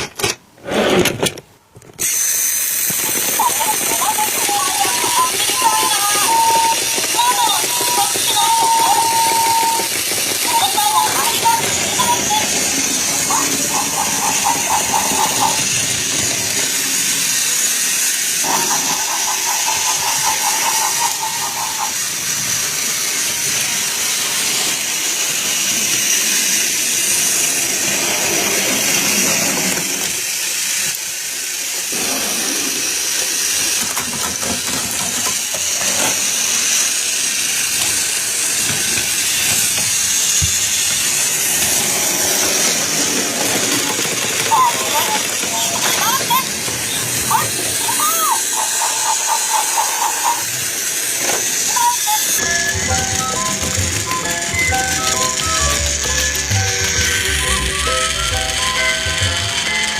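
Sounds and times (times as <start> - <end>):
steam hissing: 2.0 - 59.9
steady high tone: 18.4 - 22.0, 40.4 - 59.7.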